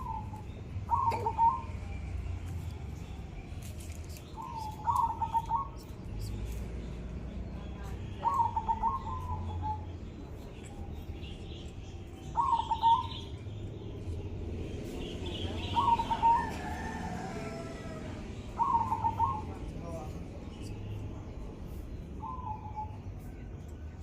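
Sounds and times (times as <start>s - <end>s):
dove cooing: 0.0s - 1.9s, 4.4s - 5.8s, 8.2s - 9.8s, 12.3s - 13.2s, 15.6s - 17.9s, 18.6s - 19.6s
faint small birds chirping: 0.0s - 17.0s, 18.5s - 24.0s.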